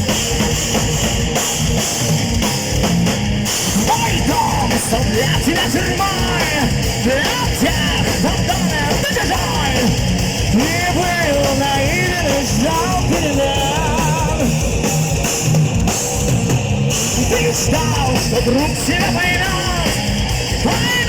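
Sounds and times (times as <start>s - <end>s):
heavy metal band playing: 0.0s - 21.0s.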